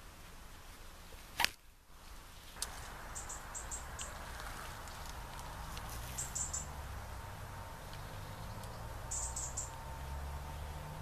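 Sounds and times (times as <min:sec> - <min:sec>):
quiet woodland background: 0:00.0 - 0:11.0
small bird high chirps: 0:03.1 - 0:04.7, 0:06.0 - 0:06.8, 0:07.9 - 0:09.9.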